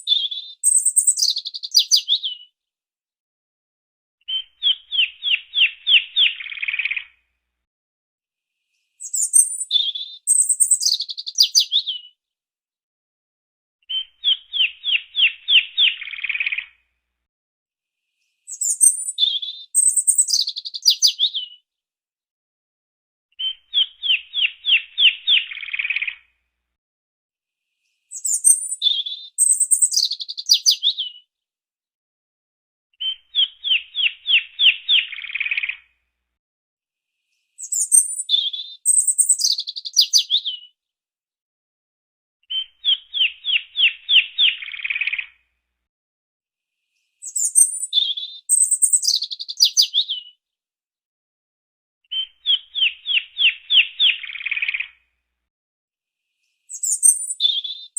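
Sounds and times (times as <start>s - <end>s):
songbird singing: 0.0s - 2.5s, 4.2s - 7.1s, 9.0s - 12.2s, 13.9s - 16.6s, 18.5s - 21.6s, 23.4s - 26.2s, 28.1s - 31.2s, 33.0s - 35.8s, 37.6s - 40.7s, 42.5s - 45.3s, 47.2s - 50.4s, 52.1s - 55.0s, 56.7s - 57.9s.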